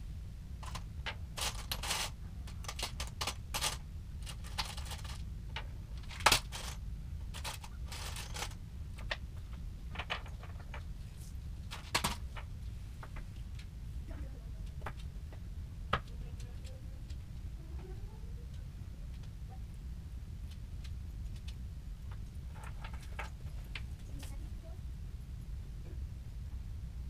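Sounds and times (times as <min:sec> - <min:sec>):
steady low hum: 0:00.0 - 0:27.0
hard objects clicking and knocking: 0:00.6 - 0:10.9.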